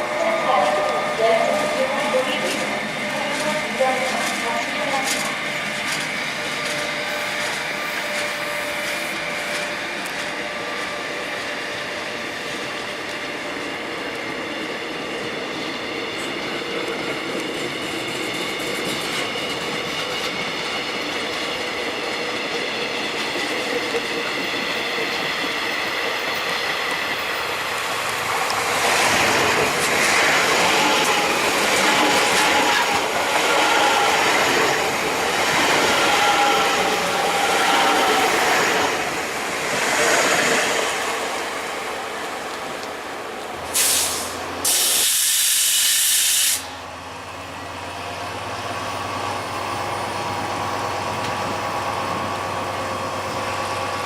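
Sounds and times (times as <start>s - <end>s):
train cars clattering: 0.0s - 11.0s, 16.2s - 44.9s
train whine: 0.0s - 54.0s.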